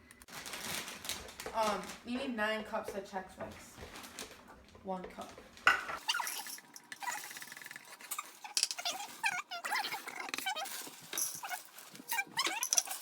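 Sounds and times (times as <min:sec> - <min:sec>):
dog whining: 0:08.1 - 0:13.0.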